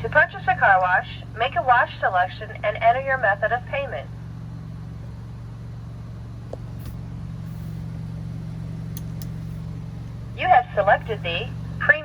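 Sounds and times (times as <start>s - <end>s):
car engine idling: 0.0s - 12.0s
faint clicks: 8.9s - 9.4s.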